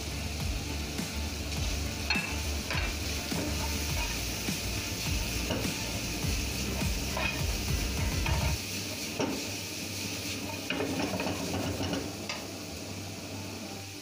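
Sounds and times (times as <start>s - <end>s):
food sizzling in a frying pan: 0.0s - 14.0s
metal spatula scraping a pan: 2.0s - 9.5s, 10.3s - 12.2s.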